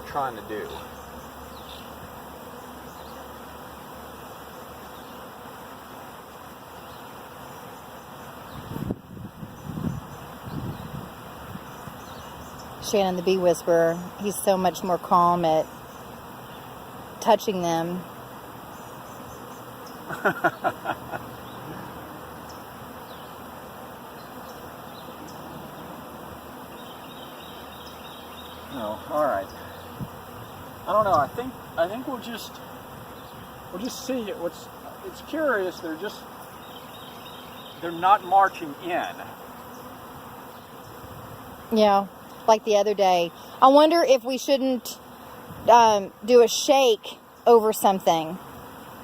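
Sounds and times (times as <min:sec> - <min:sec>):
bee swarm buzzing: 0:00.0 - 0:49.0
person laughing: 0:20.0 - 0:22.2.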